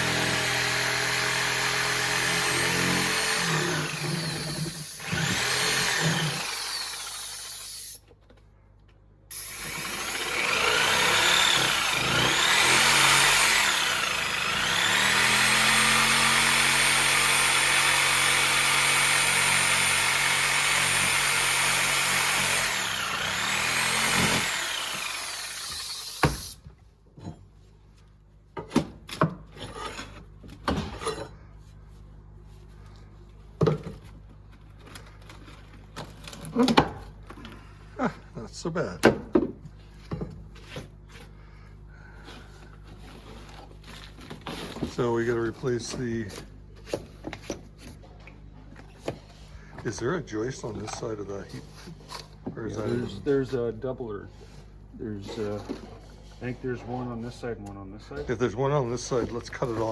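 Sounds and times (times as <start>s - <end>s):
power saw cutting wood: 0.0s - 8.0s, 9.3s - 26.6s.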